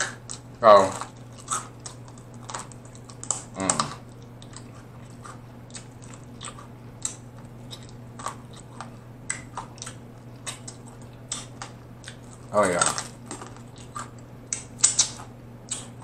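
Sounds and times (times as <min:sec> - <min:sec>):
chewing crispy food: 0:00.0 - 0:16.0.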